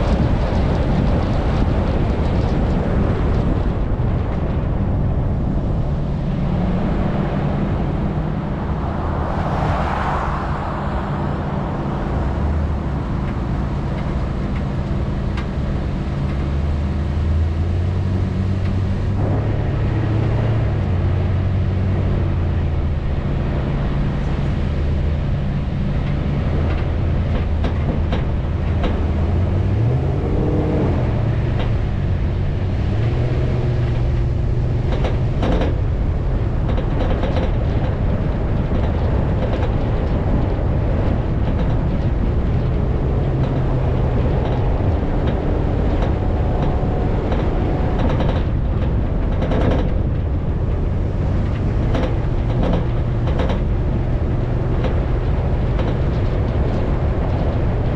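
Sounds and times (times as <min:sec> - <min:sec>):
off-road vehicle engine: 0:00.0 - 0:57.9
rattles and knocks: 0:12.0 - 0:57.9.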